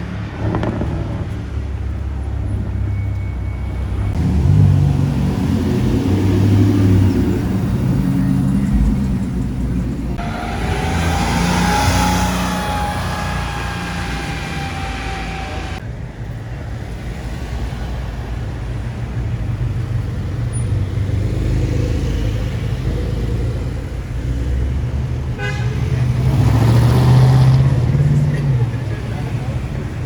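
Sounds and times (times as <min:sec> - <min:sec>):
low engine rumble: 0:00.0 - 0:16.4
street traffic: 0:00.0 - 0:30.0
steady high tone: 0:10.2 - 0:15.8.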